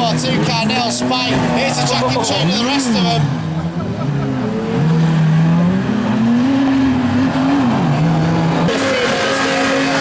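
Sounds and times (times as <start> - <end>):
car engines revving: 0.0 - 10.0.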